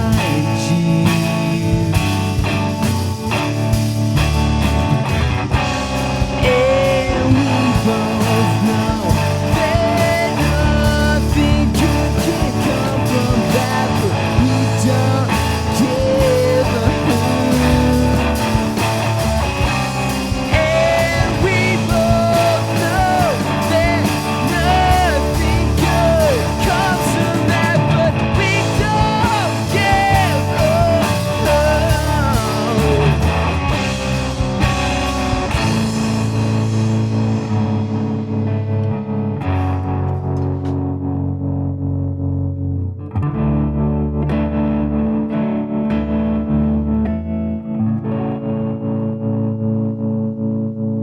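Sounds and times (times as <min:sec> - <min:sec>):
rock band playing: 0:00.0 - 0:41.9
bending lead guitar melody: 0:00.0 - 0:51.0.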